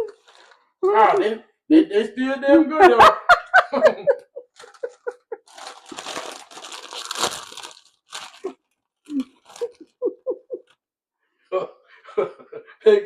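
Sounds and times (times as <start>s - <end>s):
plastic chip bag crinkling: 0.0s - 0.6s, 4.6s - 10.0s.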